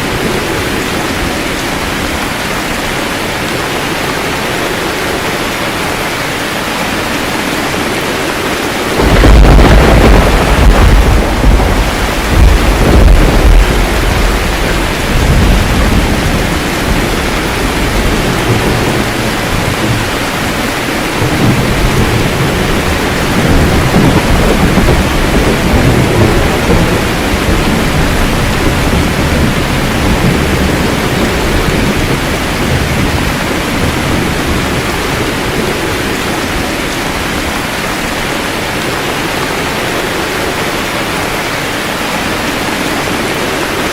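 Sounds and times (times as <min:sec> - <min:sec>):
heavy rain: 0:00.0 - 0:43.9
rolling thunder: 0:08.9 - 0:37.7.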